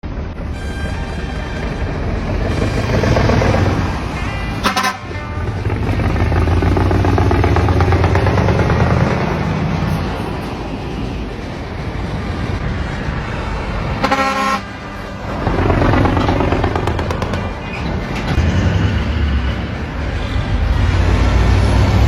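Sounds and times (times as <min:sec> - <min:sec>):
truck exhaust running deep: 0:00.0 - 0:22.0
short high-pitched toot: 0:00.5 - 0:01.7.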